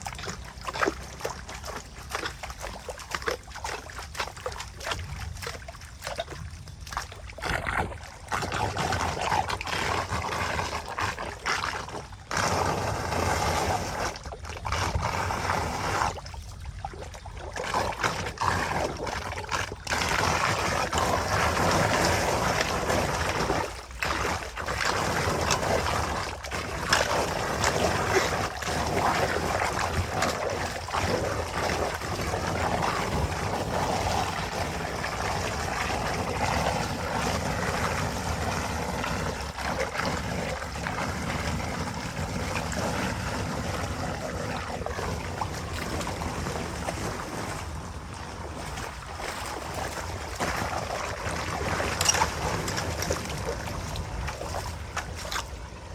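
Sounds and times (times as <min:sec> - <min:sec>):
running water splashing: 0:00.0 - 0:55.9
wind noise on microphone: 0:04.7 - 0:55.9.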